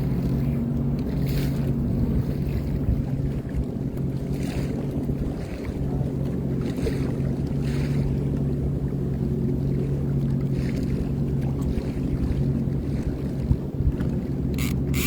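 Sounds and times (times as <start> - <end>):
personal watercraft engine humming: 0.0 - 15.0
wind and water hiss: 12.8 - 15.0.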